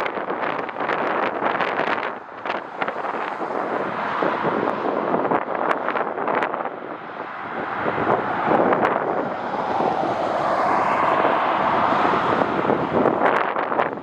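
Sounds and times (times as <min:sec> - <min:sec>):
wind buffeting microphone: 0:00.0 - 0:14.0
jet airliner engines: 0:07.4 - 0:14.0.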